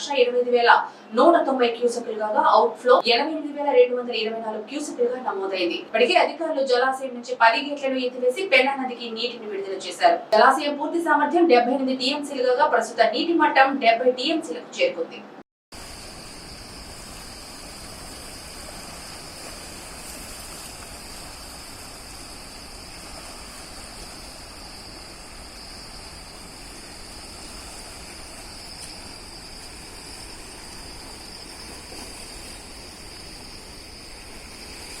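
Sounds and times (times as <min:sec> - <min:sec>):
constant high-pitched tone: 0:15.8 - 0:35.0.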